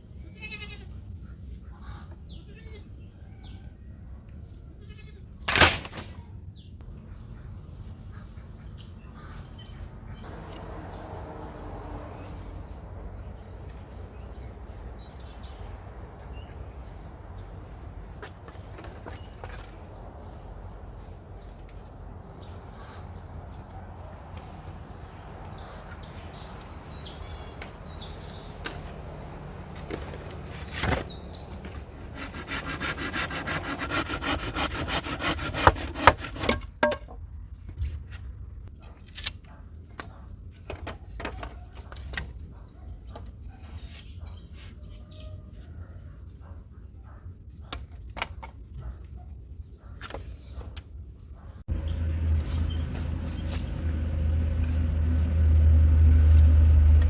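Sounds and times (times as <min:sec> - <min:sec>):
hand saw cutting wood: 0:29.8 - 0:36.8.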